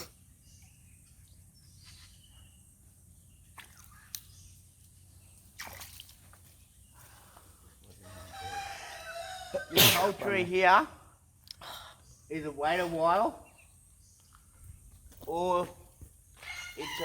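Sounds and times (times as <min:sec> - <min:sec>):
creek water sloshing and dripping: 0:00.5 - 0:08.1.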